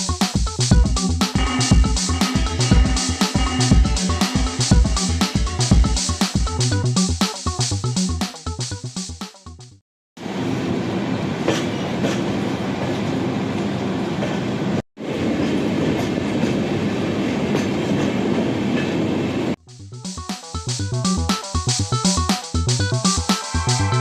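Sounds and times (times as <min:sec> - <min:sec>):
train rumbling on track: 0:10.2 - 0:19.6
faint rail clatter: 0:11.4 - 0:19.1.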